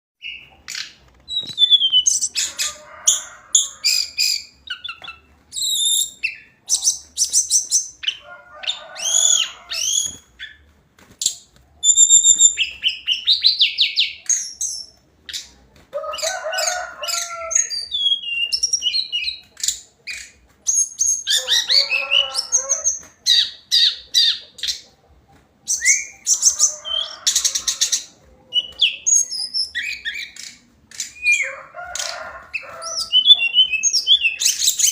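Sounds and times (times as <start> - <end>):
bird whistling and warbling: 0.2 - 2.6, 4.0 - 8.2, 9.0 - 10.6, 11.8 - 14.9, 17.6 - 24.8, 25.7 - 27.2, 32.8 - 34.9.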